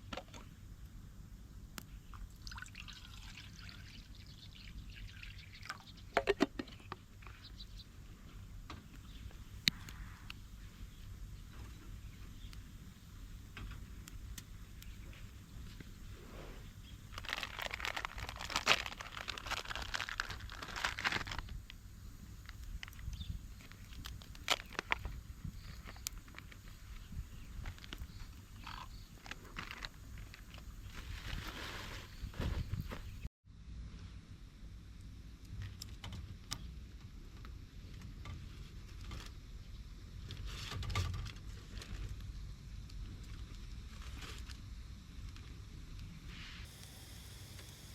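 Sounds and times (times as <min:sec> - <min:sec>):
wood fire crackling: 0:12.4 - 0:16.2, 0:46.7 - 0:47.9
crinkling rustling handling noise: 0:17.0 - 0:21.8, 0:22.4 - 0:33.2.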